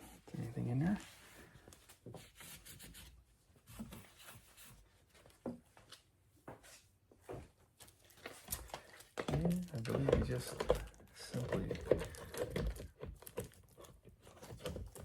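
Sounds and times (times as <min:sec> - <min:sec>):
rag rubbing plastic: 0:09.4 - 0:15.0.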